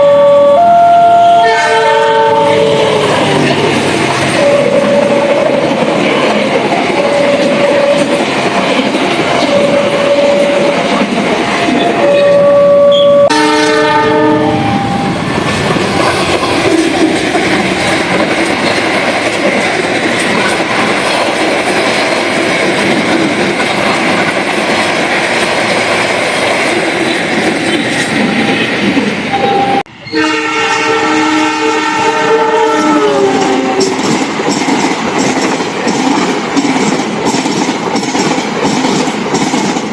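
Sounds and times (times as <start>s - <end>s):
locomotive horn: 0.0s - 3.2s, 4.4s - 5.6s, 6.9s - 8.2s, 9.4s - 10.9s, 11.7s - 15.2s, 29.4s - 34.0s
train wheels rushing on rails: 0.0s - 39.9s.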